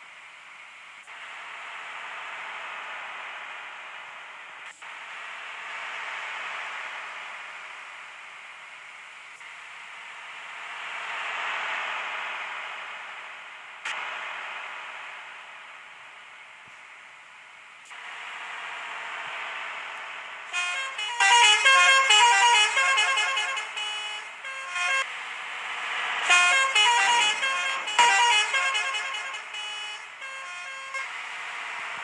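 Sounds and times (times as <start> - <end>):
moving bus noise: 0.0 - 32.0
bus horn playing a tune: 20.5 - 25.1, 26.1 - 32.0.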